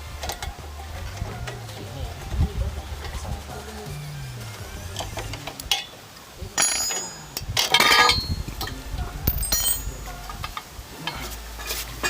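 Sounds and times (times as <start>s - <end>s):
metal parts and tools clanking: 4.9s - 6.0s, 6.6s - 11.9s.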